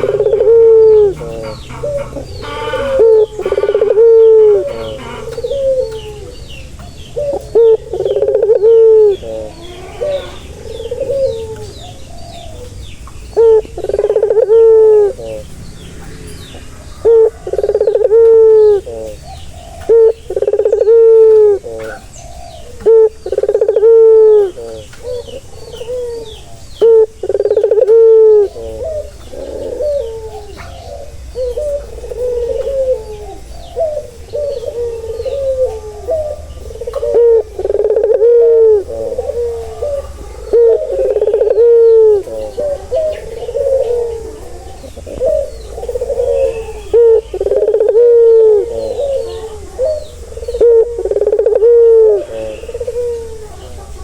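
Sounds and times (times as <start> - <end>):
doves cooing: 0.0 - 54.0.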